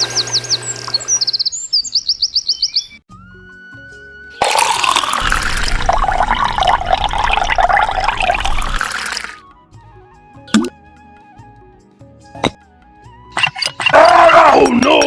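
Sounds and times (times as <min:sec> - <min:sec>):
background music: 0:03.1 - 0:06.8, 0:08.8 - 0:15.0
water gushing and splashing: 0:04.4 - 0:09.4.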